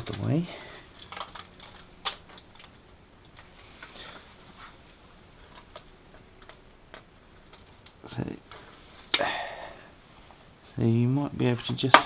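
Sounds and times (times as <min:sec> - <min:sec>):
metal and cable clicks and taps: 0:05.5 - 0:08.6.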